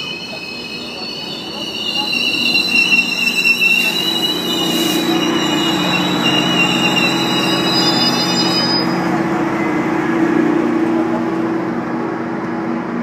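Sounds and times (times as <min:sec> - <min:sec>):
wheel and brake squeal: 0:00.0 - 0:09.1
diesel locomotive low hum: 0:00.0 - 0:13.0.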